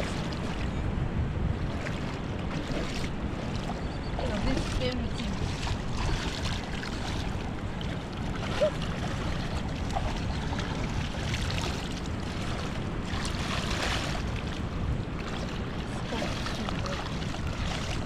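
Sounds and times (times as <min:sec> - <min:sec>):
moving water: 0:00.0 - 0:18.0
wind buffeting microphone: 0:00.0 - 0:18.0.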